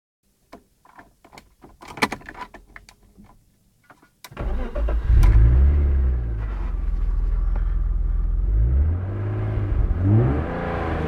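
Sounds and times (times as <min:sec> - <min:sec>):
car engine cranking and starting: 0:04.3 - 0:11.0.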